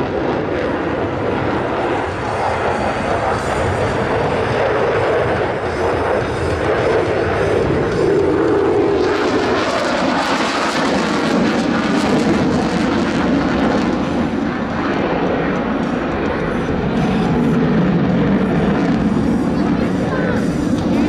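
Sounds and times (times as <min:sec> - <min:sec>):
jet engine rushing: 0:00.0 - 0:21.0.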